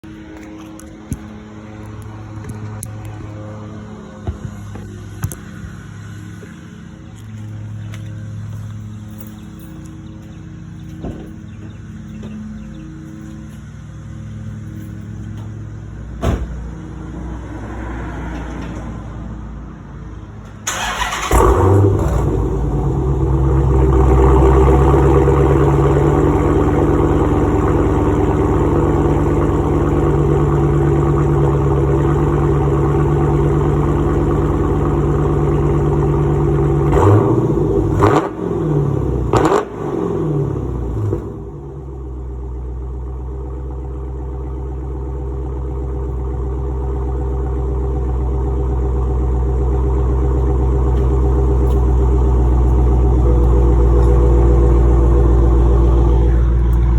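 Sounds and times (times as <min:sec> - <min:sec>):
loud car exhaust: 0:20.7 - 0:56.9.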